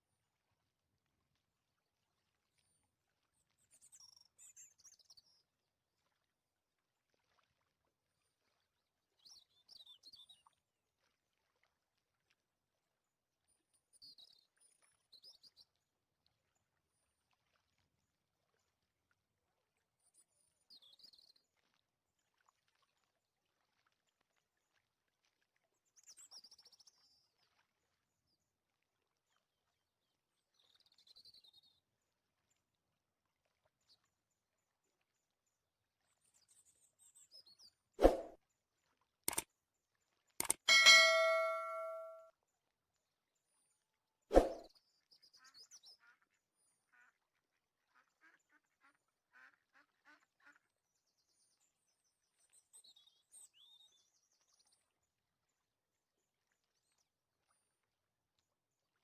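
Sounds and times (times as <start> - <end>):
high-pitched warbling chirps: 40.7 - 42.2.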